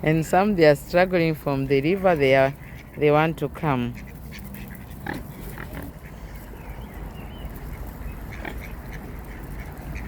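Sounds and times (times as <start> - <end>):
ducks quacking: 1.4 - 6.8, 7.4 - 10.0.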